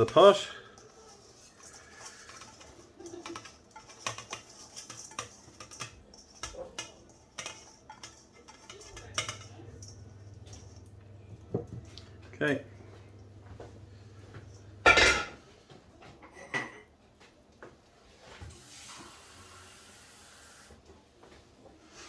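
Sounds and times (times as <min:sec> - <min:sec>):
rice pattering into a pot: 0:00.0 - 0:15.4
low steady hum: 0:07.1 - 0:15.4.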